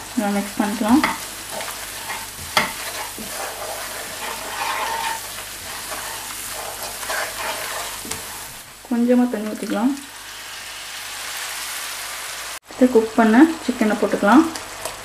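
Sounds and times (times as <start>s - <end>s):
food sizzling in hot oil: 0.0s - 15.0s
wooden spatula scraping pan: 0.3s - 8.7s.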